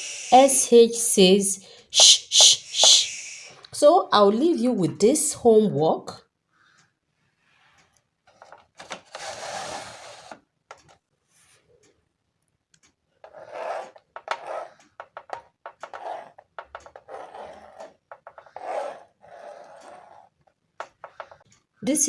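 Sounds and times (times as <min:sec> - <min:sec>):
scratchy writing strokes: 0:13.2 - 0:21.4.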